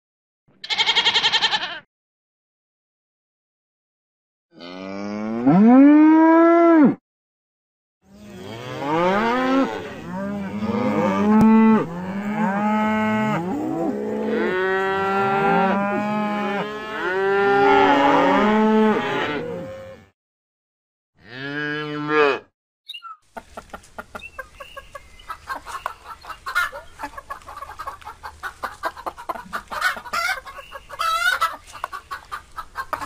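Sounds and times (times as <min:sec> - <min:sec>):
cows mooing: 0:04.6 - 0:07.0, 0:08.2 - 0:20.1, 0:21.2 - 0:22.5.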